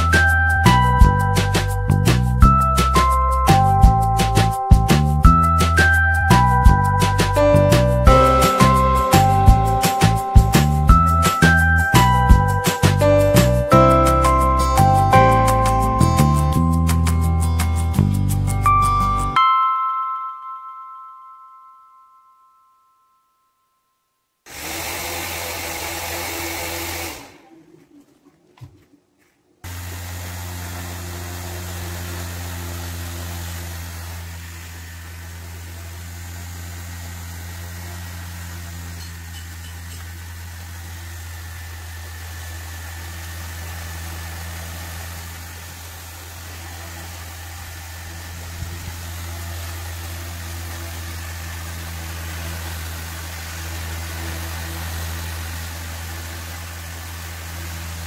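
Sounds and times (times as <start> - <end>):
small electric motor humming: 24.5 - 27.6, 29.6 - 58.0.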